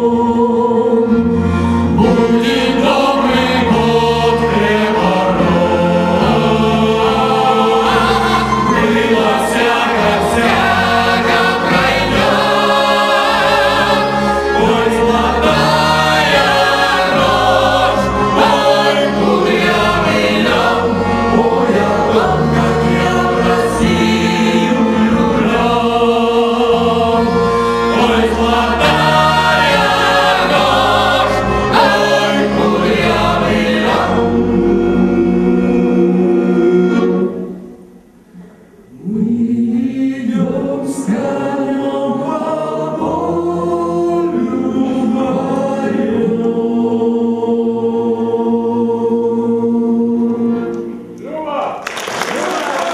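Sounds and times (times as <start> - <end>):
instrumental accompaniment with bass: 0.0 - 38.4
folk ensemble singing: 0.0 - 51.3.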